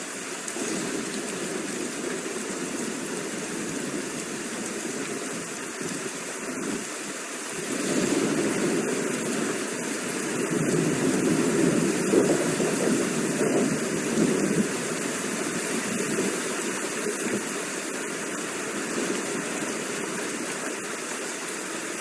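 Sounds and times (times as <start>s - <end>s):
steady rain falling: 0.0s - 22.0s
thunder rumbling: 0.5s - 6.9s, 7.6s - 17.8s.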